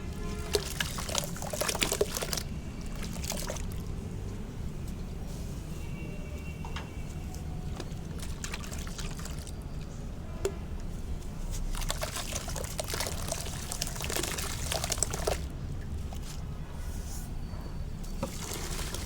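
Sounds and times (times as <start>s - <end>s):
cement fizzing and crumbling: 0.2s - 4.0s, 11.4s - 16.6s, 18.0s - 19.0s.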